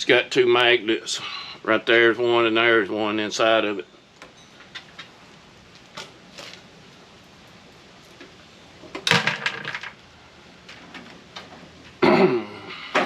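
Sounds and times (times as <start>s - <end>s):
clattering: 8.8s - 10.0s.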